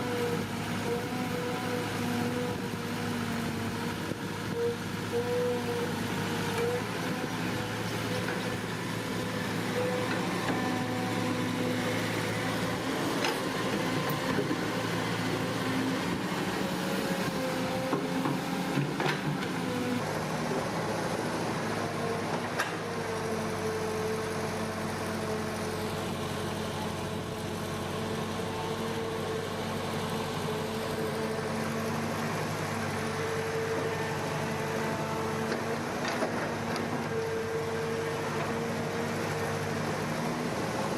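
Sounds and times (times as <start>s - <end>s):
electric motor and gear whine: 0.0s - 40.9s.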